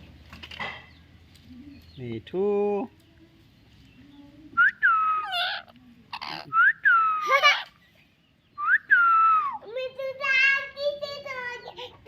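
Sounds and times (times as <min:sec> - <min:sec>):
parrot whistling and warbling: 0:04.6 - 0:07.7
parrot screeching: 0:05.2 - 0:06.6.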